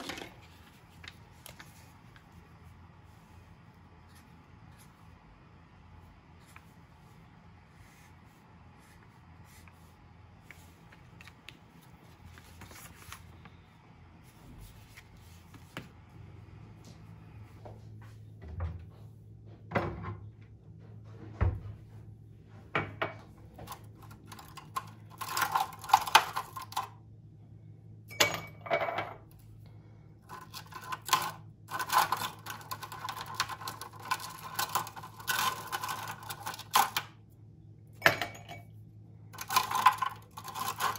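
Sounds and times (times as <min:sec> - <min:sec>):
low steady hum: 0:00.0 - 0:40.9.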